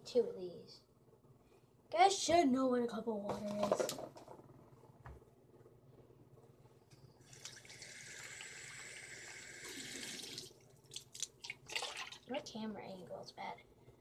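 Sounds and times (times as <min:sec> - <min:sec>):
water running from a tap: 0:07.3 - 0:12.3.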